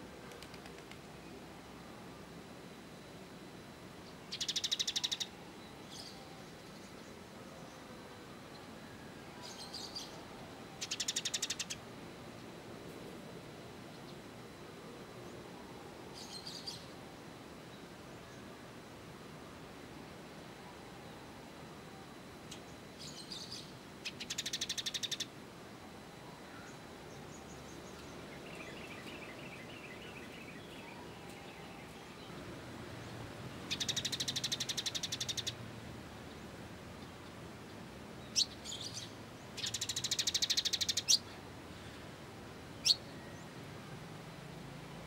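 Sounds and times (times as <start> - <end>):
buzzy songbird trills: 4.1 - 7.9, 9.4 - 11.8, 22.5 - 25.4, 33.7 - 35.6, 38.3 - 42.0
songbird chattering: 4.3 - 5.3, 10.8 - 11.8, 23.4 - 25.3, 33.7 - 35.6, 38.3 - 41.3.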